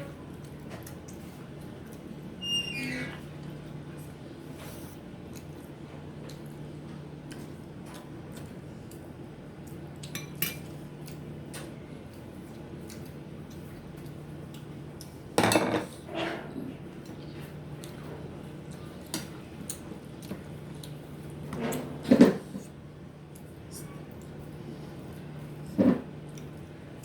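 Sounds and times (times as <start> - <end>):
dishes and utensils clinking: 15.4 - 15.9
dishes clattering: 15.4 - 15.9.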